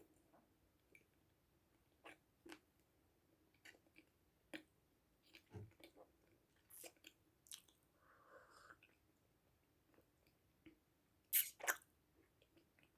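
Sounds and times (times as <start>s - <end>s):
person chewing food: 5.3s - 9.0s.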